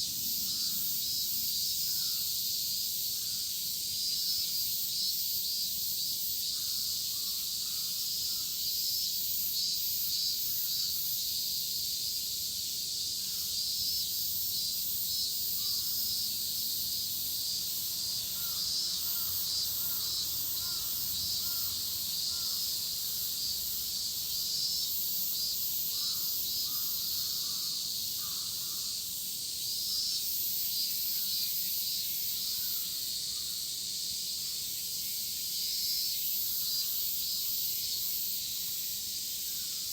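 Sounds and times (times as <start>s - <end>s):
cicadas shrilling: 0.0s - 39.9s
crows cawing: 18.4s - 22.7s, 26.0s - 28.9s.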